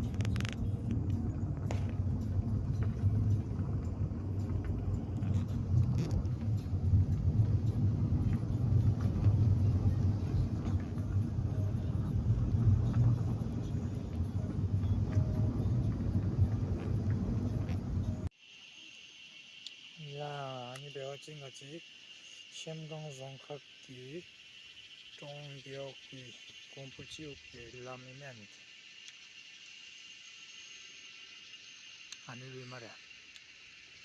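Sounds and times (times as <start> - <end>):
car rumbling on the move: 0.0 - 18.3.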